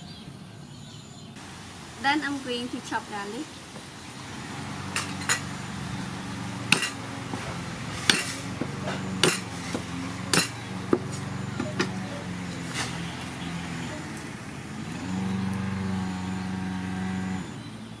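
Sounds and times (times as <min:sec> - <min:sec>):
knife chopping on a board: 0:06.7 - 0:07.0, 0:08.1 - 0:11.1.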